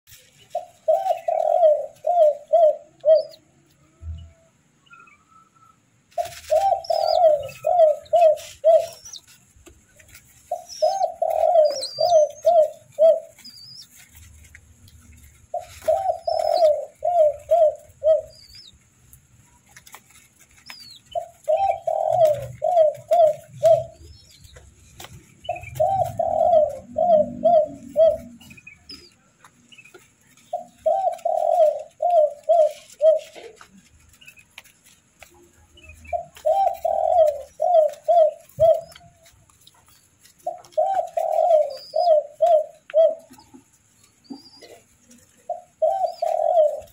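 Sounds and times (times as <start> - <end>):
small birds chirping: 0.1 - 46.9
dove cooing: 0.5 - 4.5, 6.2 - 18.8, 19.5 - 29.3, 30.4 - 34.1, 35.2 - 46.9.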